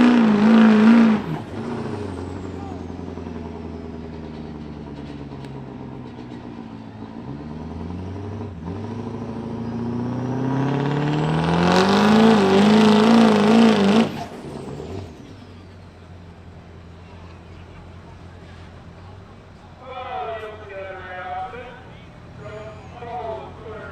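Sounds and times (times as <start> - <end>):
diesel engine revving under load: 0.0 - 23.9.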